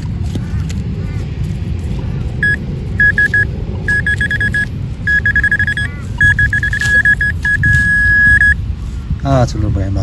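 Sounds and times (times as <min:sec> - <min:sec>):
steady low rumble: 0:00.0 - 0:10.0
pinpointer short beeps: 0:02.4 - 0:08.6.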